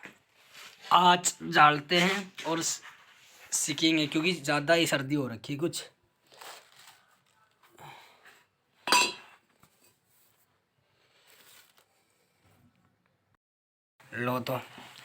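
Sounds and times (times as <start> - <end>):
scrapes and rustles: 0.0 - 1.0, 2.0 - 4.3, 6.2 - 8.5, 9.3 - 12.7.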